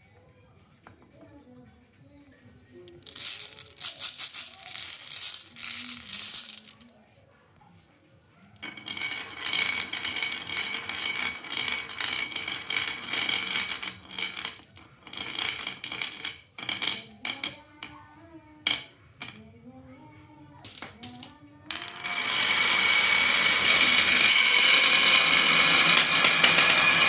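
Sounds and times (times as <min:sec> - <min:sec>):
marbles clattering down track: 0:02.9 - 0:06.9, 0:08.5 - 0:18.0, 0:18.6 - 0:19.4, 0:20.6 - 0:27.0.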